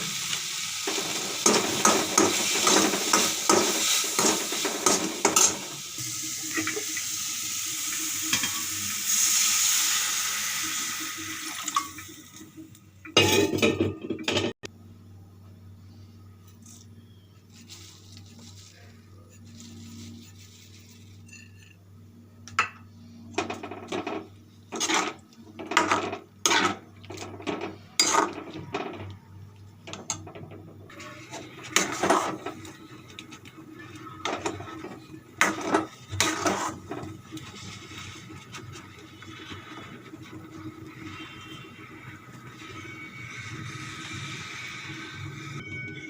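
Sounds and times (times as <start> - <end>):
utensil scraping a pan: 17.5 - 21.8, 23.4 - 29.0, 30.9 - 45.6.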